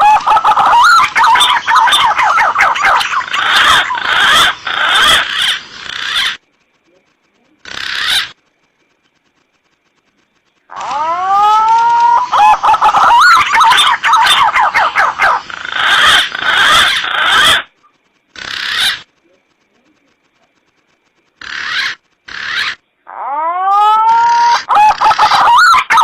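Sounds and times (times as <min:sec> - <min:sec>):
pigeons whistled calls: 0:00.0 - 0:06.4, 0:10.8 - 0:17.7, 0:24.0 - 0:26.0.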